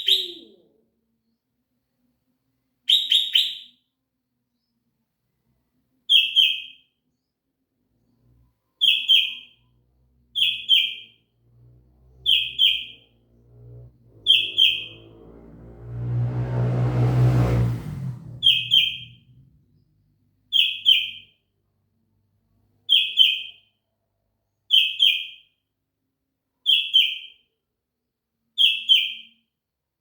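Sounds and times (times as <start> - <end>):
low hum: 11.4 - 20.1
bird calling: 12.2 - 13.1, 14.2 - 15.0, 18.4 - 19.2.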